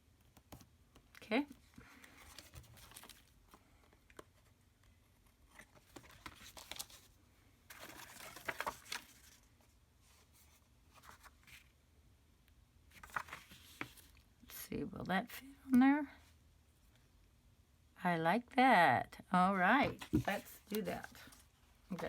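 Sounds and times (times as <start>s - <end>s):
paper rustling: 1.8s - 3.6s, 5.5s - 11.7s, 12.9s - 14.2s, 19.8s - 22.0s.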